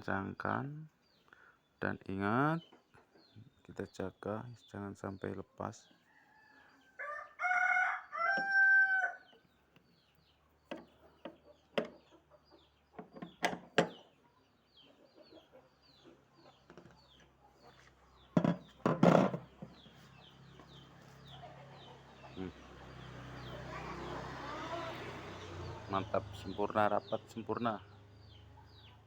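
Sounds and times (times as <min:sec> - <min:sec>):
rooster crowing: 0:06.4 - 0:09.2
sharp clicks and knocks: 0:10.7 - 0:12.1, 0:13.0 - 0:14.0.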